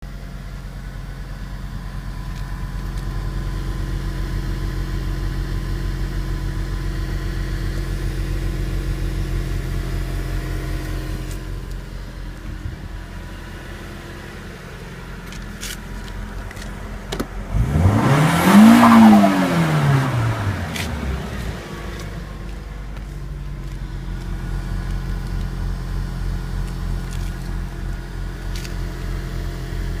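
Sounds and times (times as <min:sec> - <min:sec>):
car exhaust idling: 0:00.1 - 0:30.0
engine rev: 0:15.6 - 0:30.0.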